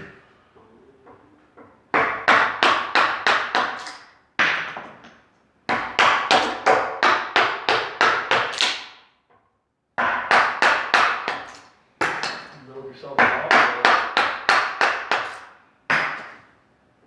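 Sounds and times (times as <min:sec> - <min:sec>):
wooden mallet striking chisel: 0:01.9 - 0:05.1, 0:05.7 - 0:08.9, 0:10.0 - 0:12.5, 0:13.2 - 0:16.4.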